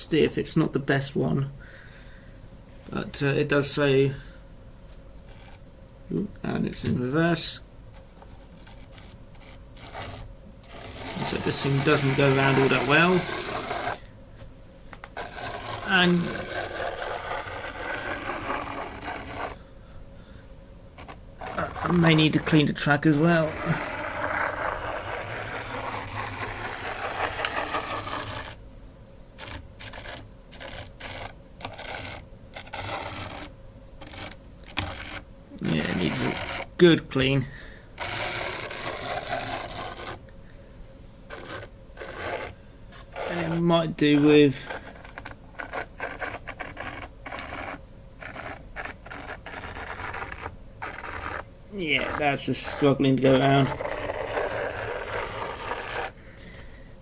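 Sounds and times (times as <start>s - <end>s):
model train motor whirring: 9.8s - 14.0s, 15.2s - 19.6s, 23.2s - 28.6s, 29.4s - 36.7s
model locomotive rasping whirr: 21.0s - 28.6s.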